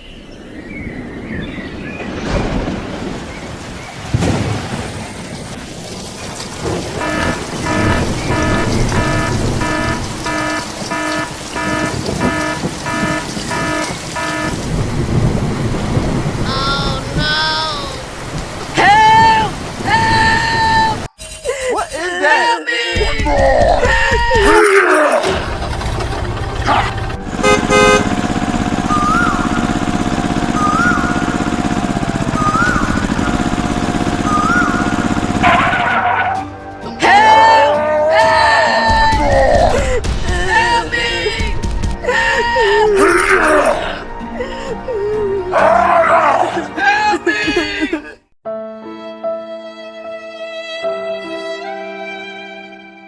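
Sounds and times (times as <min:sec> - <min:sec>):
loud noisy burst: 0:04.2 - 0:16.8, 0:25.2 - 0:36.1
small engine running: 0:06.6 - 0:14.6, 0:25.2 - 0:36.2
electronic beeper beeping: 0:07.0 - 0:14.6, 0:28.8 - 0:36.0.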